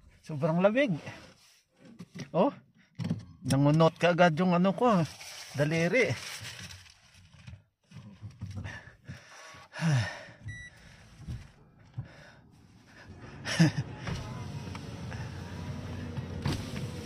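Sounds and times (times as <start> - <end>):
short beep: 10.5 - 10.7
car engine running: 11.4 - 17.0.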